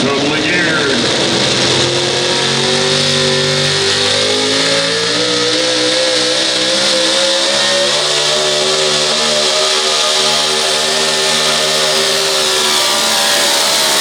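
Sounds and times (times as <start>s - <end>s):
truck engine revving high: 0.0s - 14.0s.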